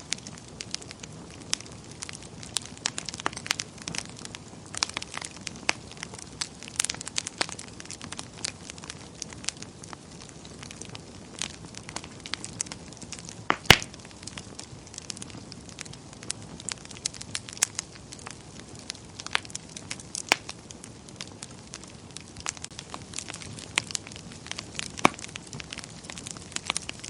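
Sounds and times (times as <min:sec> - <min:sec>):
soft steady fire hiss: 0:00.0 - 0:27.0
wood fire crackling and popping: 0:00.0 - 0:27.0.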